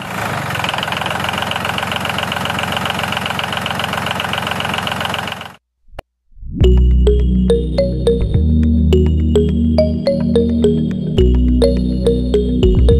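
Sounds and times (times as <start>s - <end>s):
toy tractor mechanical chatter: 0.0s - 5.6s.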